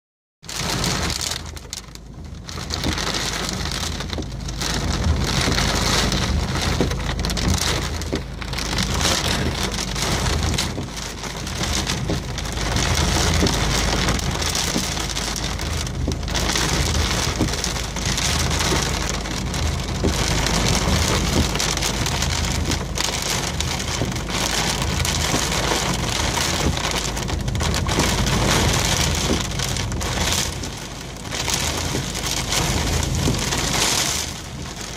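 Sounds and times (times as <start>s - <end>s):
heavy rain pouring: 0.4s - 34.9s.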